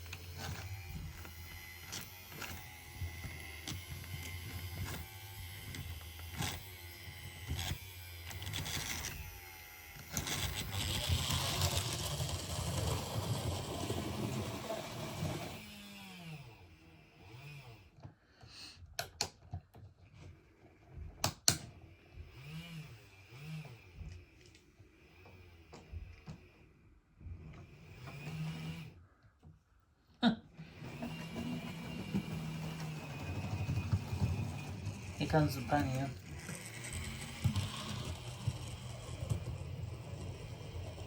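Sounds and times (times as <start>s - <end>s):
model train motor whirring: 0.0s - 17.9s, 21.9s - 26.6s, 30.7s - 41.0s
wheels clicking over rail joints: 10.2s - 15.6s, 30.9s - 41.0s.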